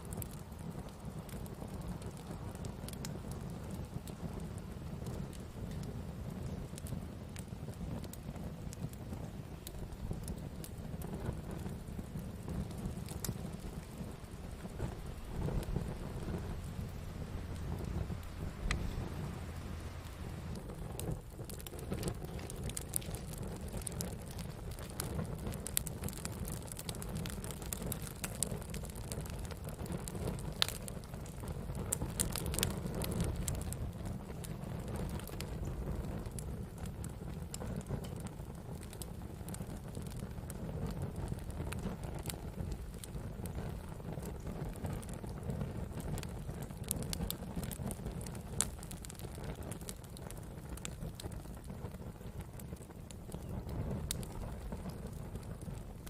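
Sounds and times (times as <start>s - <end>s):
campfire flames rumbling: 0.0s - 56.0s
fire crackling and popping: 0.0s - 56.0s
low rumble: 12.7s - 23.2s.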